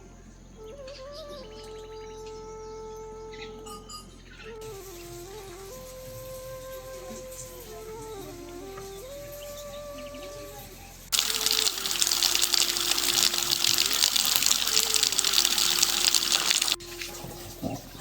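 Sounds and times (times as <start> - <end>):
hiss of rushing water: 11.1 - 16.8.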